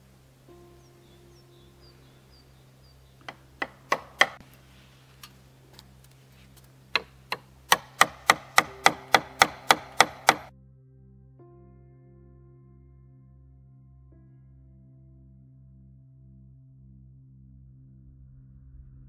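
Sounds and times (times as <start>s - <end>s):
hammer striking nail into wood: 3.2s - 4.4s, 7.0s - 10.5s.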